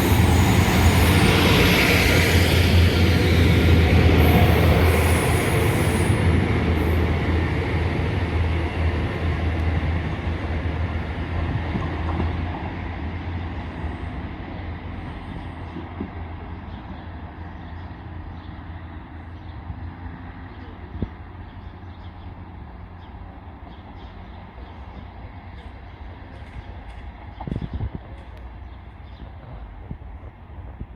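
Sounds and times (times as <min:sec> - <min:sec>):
rail rumble: 0:00.0 - 0:20.4
train engine hum: 0:00.0 - 0:30.9.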